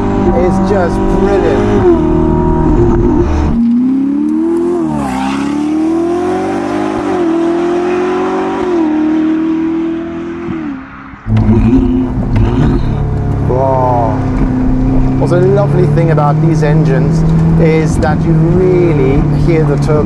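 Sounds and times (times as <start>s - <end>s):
car engine accelerating hard: 0.0s - 20.0s
loud low rumble: 11.1s - 16.8s.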